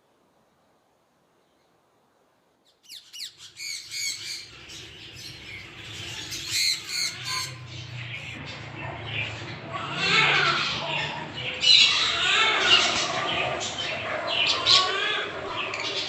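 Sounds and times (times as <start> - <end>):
bird squawking: 2.7 - 8.4, 9.7 - 16.0.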